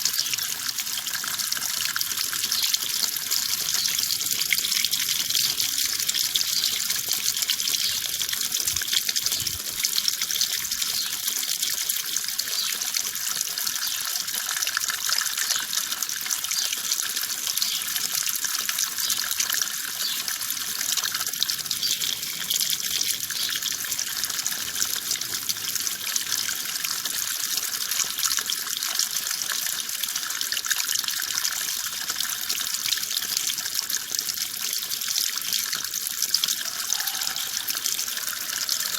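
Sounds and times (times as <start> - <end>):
water running: 36.5 - 38.9.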